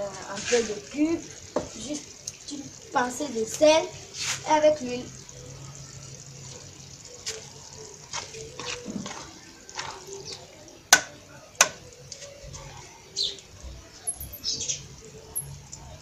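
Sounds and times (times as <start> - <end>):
birds chirping: 11.8 - 16.0.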